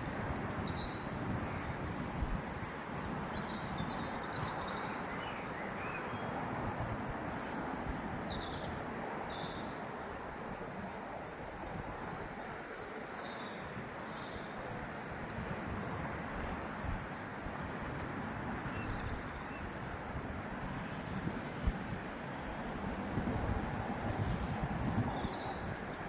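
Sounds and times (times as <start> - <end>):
small birds chirping: 0.0 - 6.1, 12.0 - 26.0
distant traffic hum: 0.0 - 26.0.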